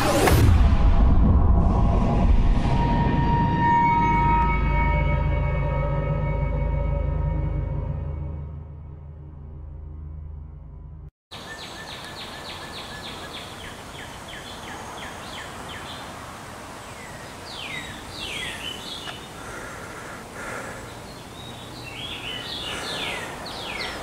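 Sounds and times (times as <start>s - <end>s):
songbirds singing: 11.3s - 24.0s.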